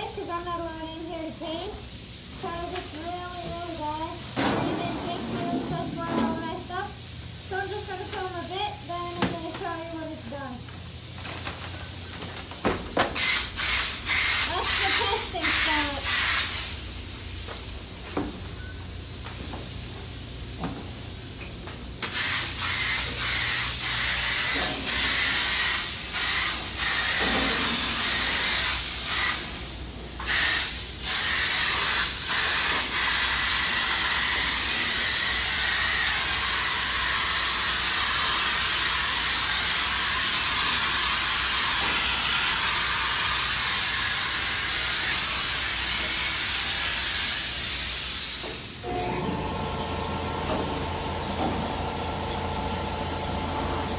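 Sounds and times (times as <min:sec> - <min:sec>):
paint spray gun hissing: 0:13.0 - 0:18.0, 0:22.1 - 0:53.9.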